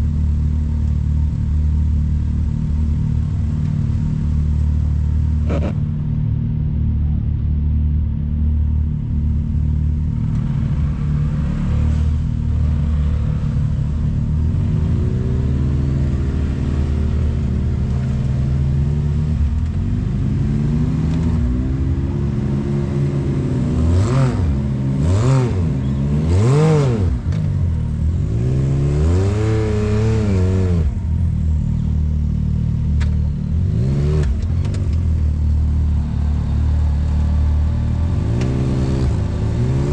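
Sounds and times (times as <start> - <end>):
utv engine running: 0.0 - 39.9
engine revving: 5.3 - 7.4, 10.2 - 31.3, 33.0 - 39.9.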